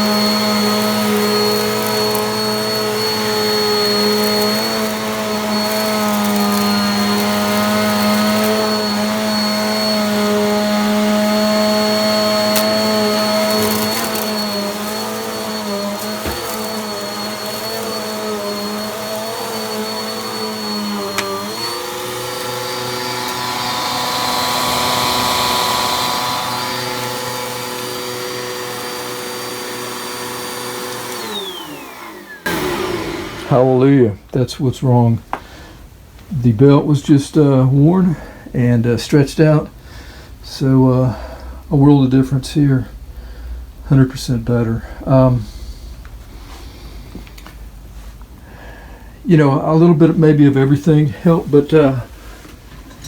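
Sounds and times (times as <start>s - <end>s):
vacuum cleaner motor whine: 0.0s - 34.4s.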